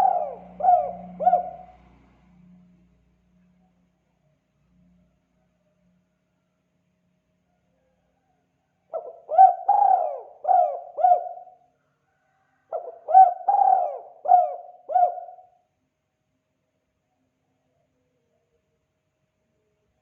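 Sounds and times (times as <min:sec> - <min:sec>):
dove cooing: 0:00.0 - 0:02.0, 0:08.9 - 0:11.6, 0:12.7 - 0:15.6.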